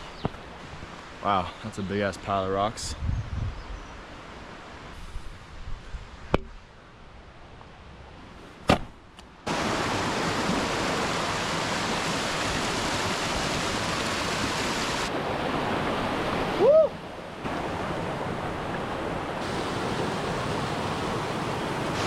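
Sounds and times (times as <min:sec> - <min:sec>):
waterfall rushing: 0:09.5 - 0:18.7, 0:19.4 - 0:22.0.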